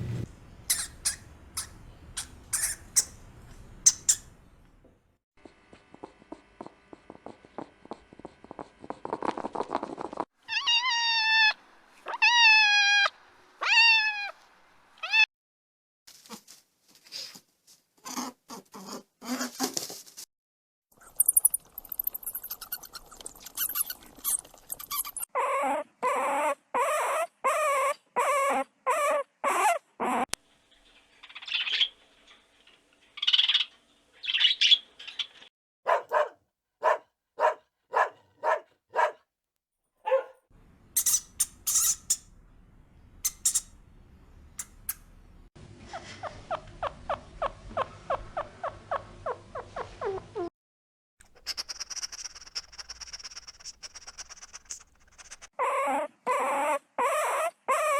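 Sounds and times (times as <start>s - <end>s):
dogs whining: 23.5s - 30.3s, 51.4s - 57.9s
dogs barking: 35.8s - 39.2s, 40.0s - 40.4s.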